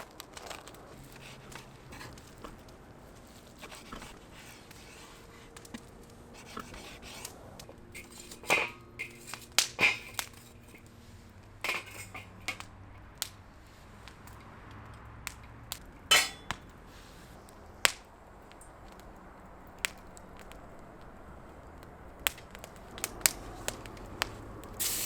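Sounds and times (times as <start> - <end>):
utensils knocking against a pan: 8.0 - 10.8, 11.6 - 12.6, 16.1 - 16.6.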